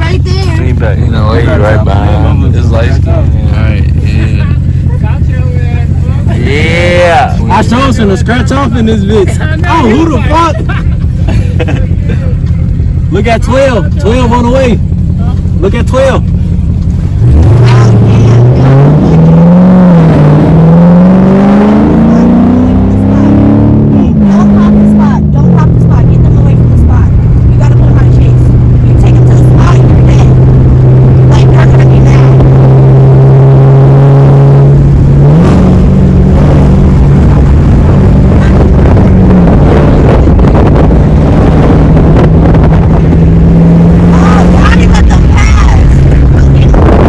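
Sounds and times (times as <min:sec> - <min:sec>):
car engine accelerating hard: 0:00.0 - 0:47.0
wind noise on microphone: 0:21.2 - 0:47.0.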